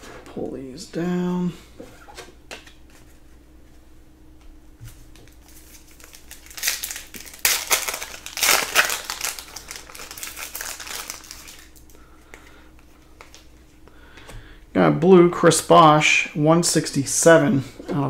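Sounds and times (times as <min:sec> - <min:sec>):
wrapper tearing and crinkling: 0:05.2 - 0:11.9.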